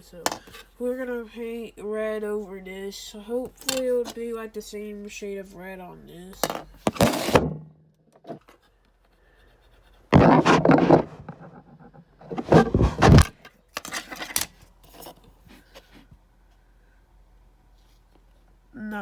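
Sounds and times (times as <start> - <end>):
soft scratches: 9.4 - 13.3
scraping and rubbing: 10.1 - 14.4.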